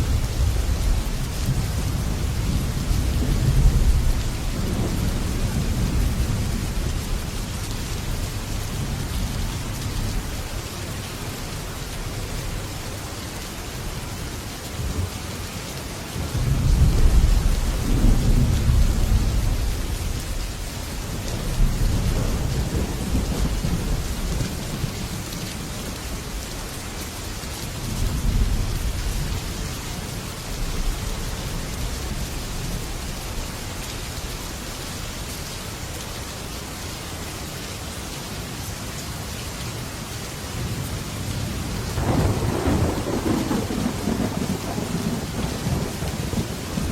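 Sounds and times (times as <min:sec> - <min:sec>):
heavy rain on a metal roof: 0:00.0 - 0:46.9
rolling thunder: 0:16.4 - 0:20.7, 0:21.3 - 0:25.2, 0:41.4 - 0:46.9.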